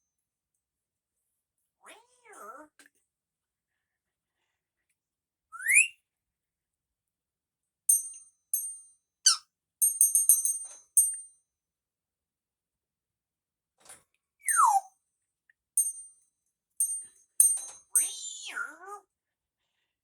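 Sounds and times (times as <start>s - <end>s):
parrot high beeps and chirps: 5.6s - 6.0s, 14.4s - 14.9s
parrot whistling: 5.6s - 6.0s.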